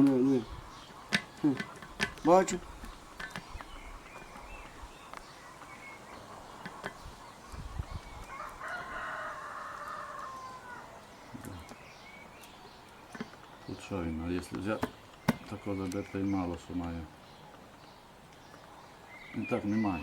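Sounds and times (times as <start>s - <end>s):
rooster crowing: 8.2s - 11.1s.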